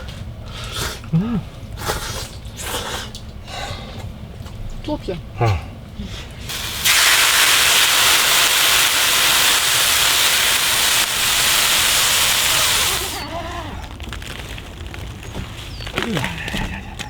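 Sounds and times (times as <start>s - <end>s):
loud steady hiss: 6.5s - 13.3s.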